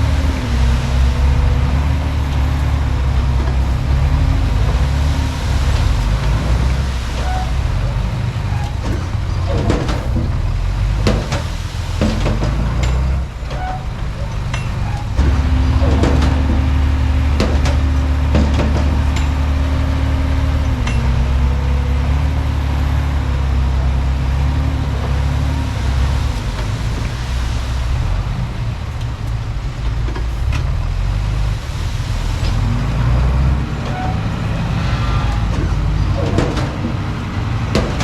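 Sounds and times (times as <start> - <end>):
bulldozer diesel engine humming: 0.0 - 38.0
scattered knocks: 8.7 - 13.6, 14.4 - 19.6, 35.4 - 38.0.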